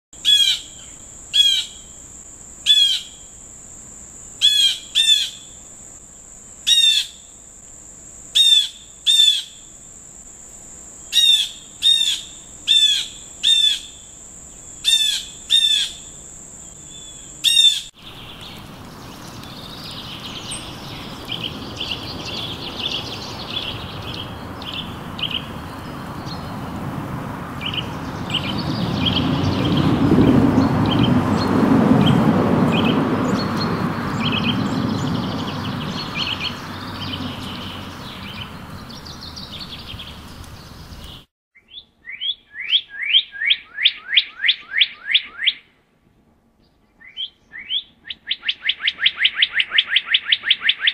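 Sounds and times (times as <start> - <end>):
sharp bird calls: 0.2 - 1.9, 2.7 - 3.2, 4.4 - 5.6, 8.4 - 9.6, 11.1 - 14.0, 14.6 - 16.1, 16.7 - 26.9, 27.5 - 45.8, 46.6 - 50.9
background hiss: 0.2 - 30.6
rapid bird chirping: 11.0 - 26.9, 27.5 - 45.7, 46.9 - 50.9
high-pitched whine: 27.5 - 40.4.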